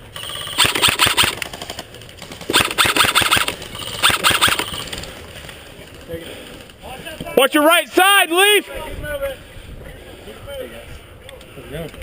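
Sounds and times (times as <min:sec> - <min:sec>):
airsoft rifle full-auto bursts: 0:00.2 - 0:01.8, 0:02.4 - 0:05.0.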